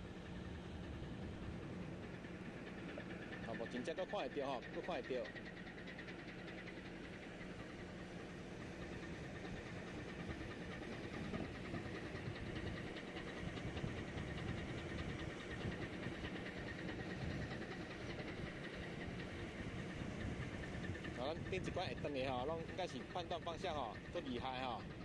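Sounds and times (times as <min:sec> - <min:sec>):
ship engine drone: 0:00.0 - 0:25.0
wind: 0:00.0 - 0:25.0.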